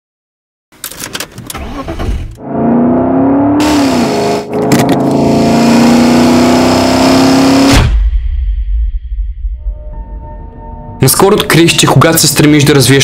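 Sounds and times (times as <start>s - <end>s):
car engine starting and running: 0.8s - 8.0s.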